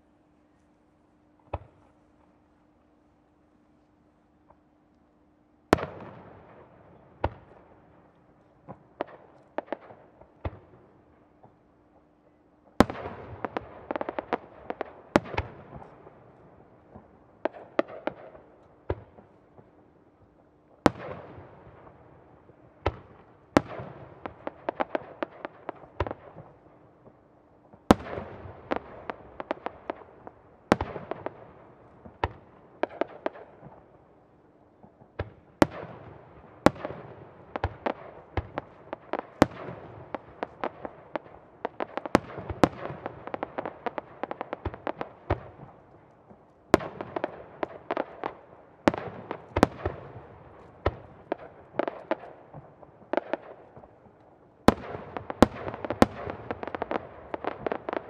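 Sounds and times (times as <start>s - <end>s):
crackle of small pops: 36.7s - 58.0s.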